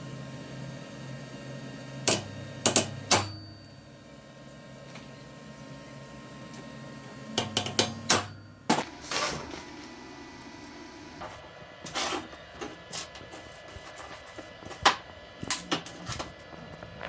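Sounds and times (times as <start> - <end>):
knocks and clicks of tools: 2.1 - 3.5, 7.4 - 8.9, 11.2 - 16.4
scrape: 8.8 - 9.9, 11.2 - 14.9.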